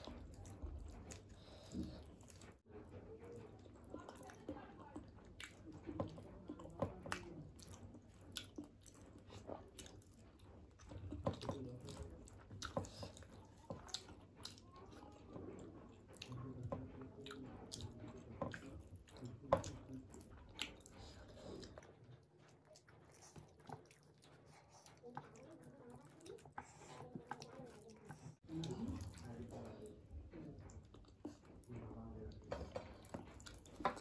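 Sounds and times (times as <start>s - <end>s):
person chewing food: 0.0s - 2.7s, 3.3s - 34.0s
fingers mixing food on steel plate: 0.0s - 34.0s.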